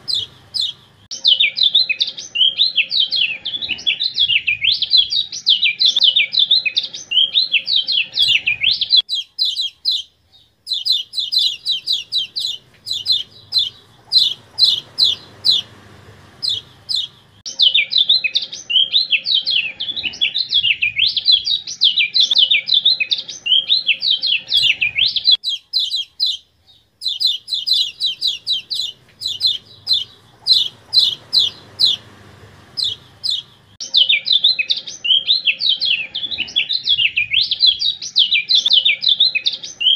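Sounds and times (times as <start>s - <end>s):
quick sharp repeated bird notes: 0.0s - 1.5s, 7.1s - 10.1s, 10.7s - 17.8s, 23.5s - 26.4s, 27.0s - 34.2s
bird chattering warbles: 0.0s - 5.0s, 6.0s - 10.1s, 10.7s - 21.3s, 22.3s - 26.4s, 27.0s - 37.0s.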